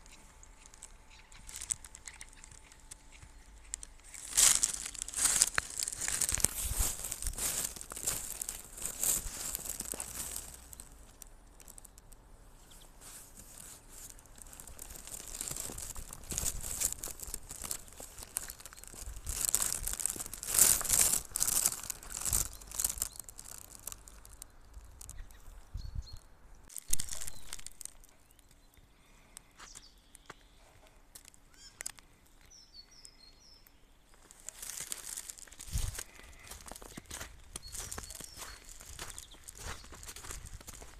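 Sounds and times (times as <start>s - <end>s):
faint bird chirps: 0.0s - 3.8s, 24.2s - 26.3s, 27.1s - 34.5s, 36.1s - 40.1s
footsteps crunching in snow: 0.0s - 11.9s, 12.7s - 25.2s, 26.7s - 28.2s, 34.1s - 40.9s.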